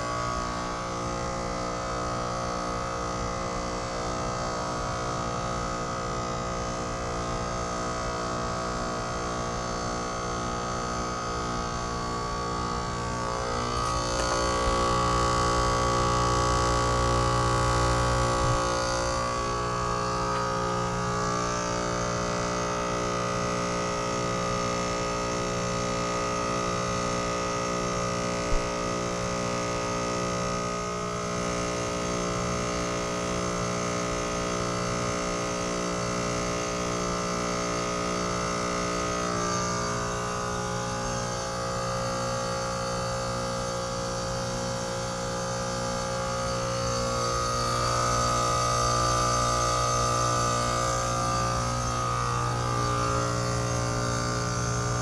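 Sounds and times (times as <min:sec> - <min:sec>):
heat pump humming: 0:00.0 - 0:55.0
heat pump click: 0:13.4 - 0:15.9, 0:20.2 - 0:21.0.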